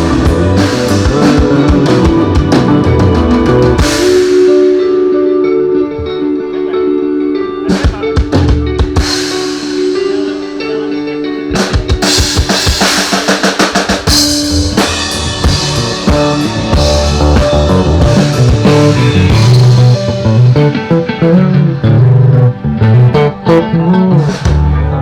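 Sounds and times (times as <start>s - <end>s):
drum kit hits: 0.0s - 4.8s, 11.5s - 20.8s
bass line: 0.0s - 11.7s, 14.1s - 25.0s
rock band playing: 0.0s - 25.0s.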